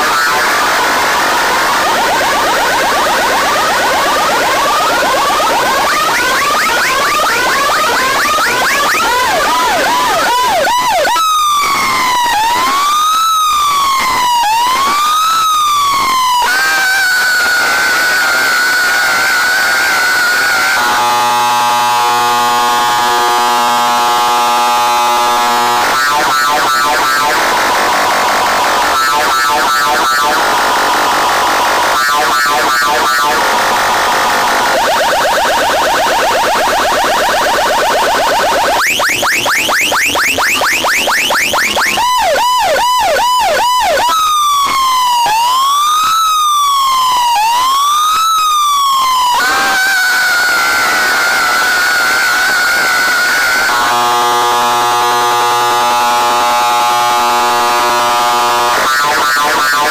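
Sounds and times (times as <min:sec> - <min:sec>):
wavering high electronic tone: 0:00.0 - 0:42.7
warbling siren sweeps: 0:00.0 - 0:59.9
buzzing horn tone: 0:17.2 - 0:34.9, 0:49.4 - 0:59.9.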